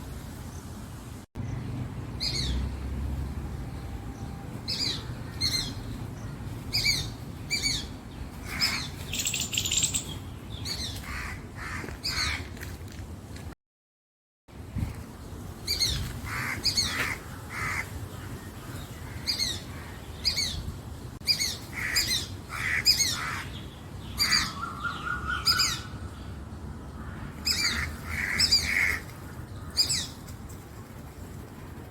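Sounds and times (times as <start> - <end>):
crows cawing: 11.0 - 12.5, 16.3 - 17.9, 21.7 - 23.6, 27.0 - 29.8.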